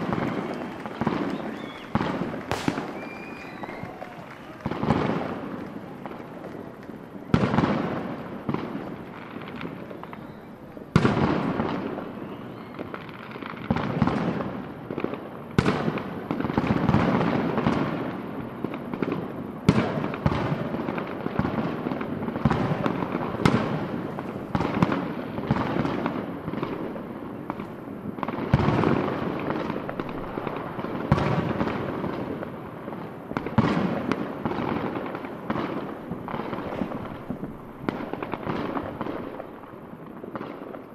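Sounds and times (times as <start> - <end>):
firework shell bursts: 0.0 - 10.4
dense fireworks crackling: 0.0 - 40.9.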